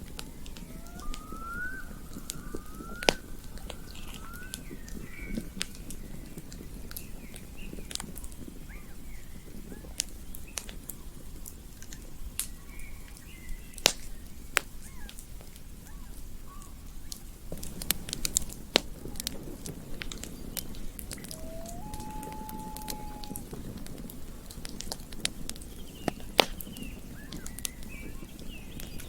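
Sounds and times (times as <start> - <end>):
campfire crackling and popping: 0.0 - 29.0
faint short chirps: 21.2 - 23.4.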